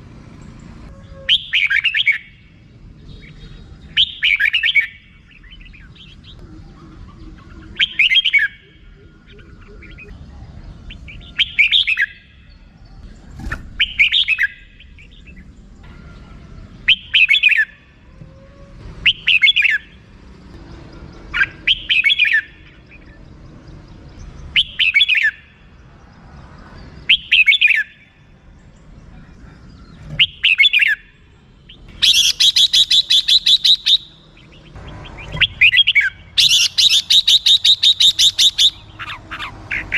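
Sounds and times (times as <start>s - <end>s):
bulbul warbled calls: 1.0s - 2.5s, 3.2s - 10.2s, 10.8s - 12.4s, 13.4s - 15.4s, 16.2s - 18.0s, 19.0s - 20.0s, 21.3s - 23.1s, 24.5s - 25.6s, 27.1s - 28.1s, 29.1s - 39.9s
bulbul rattling call: 31.7s - 39.9s.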